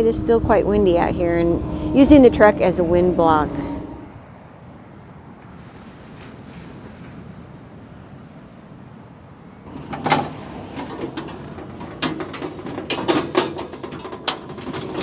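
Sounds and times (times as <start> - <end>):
low wind noise: 0.0 - 6.3
knocks clicks and clatters of gear: 9.7 - 15.0.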